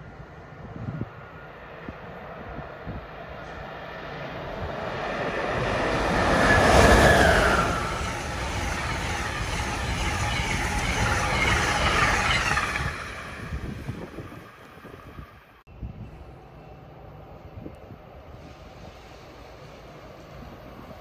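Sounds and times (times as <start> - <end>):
electric locomotive whine: 0.0 - 21.0
train cars rushing past: 0.0 - 21.0.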